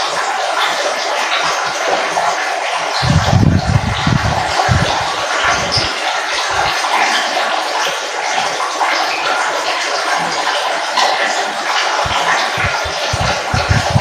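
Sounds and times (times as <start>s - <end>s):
water flowing and trickling: 0.0s - 14.0s.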